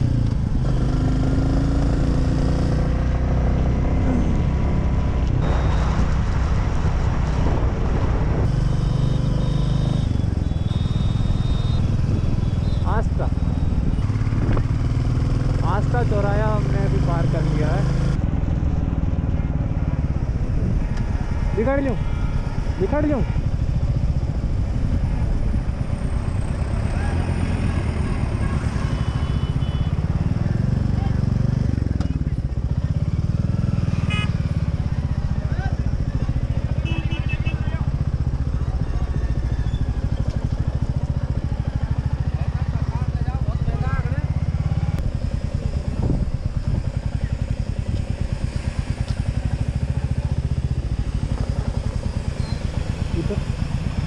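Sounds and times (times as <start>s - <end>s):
motorcycle engine running: 0.0s - 54.0s
short high beep: 5.4s - 6.2s, 8.6s - 13.8s.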